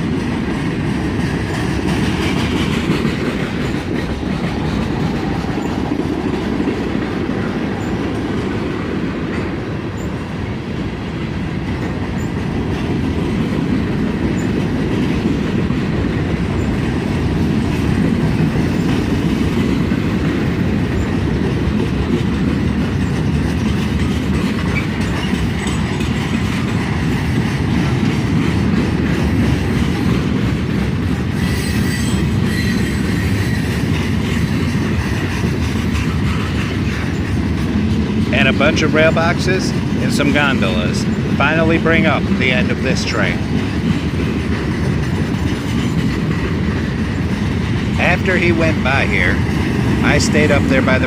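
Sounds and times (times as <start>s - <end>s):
freight train rolling past: 0.0s - 51.0s
wheel squeal: 31.4s - 33.8s.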